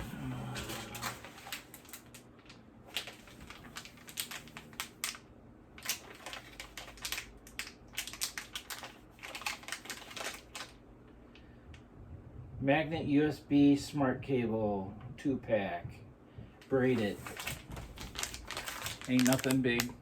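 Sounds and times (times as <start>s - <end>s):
plastic packaging crinkling: 0.5s - 10.8s, 16.8s - 20.0s.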